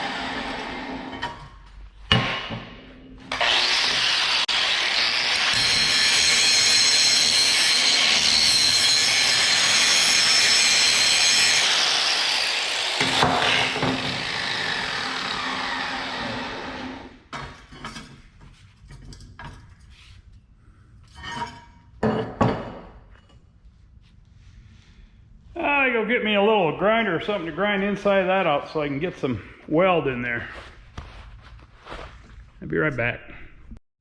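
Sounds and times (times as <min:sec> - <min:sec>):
power grinder grinding steel: 0:03.2 - 0:17.1.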